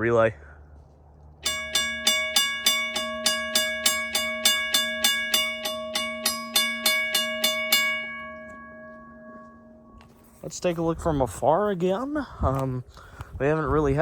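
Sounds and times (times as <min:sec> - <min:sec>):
railroad crossing bell ringing: 0:01.4 - 0:10.4.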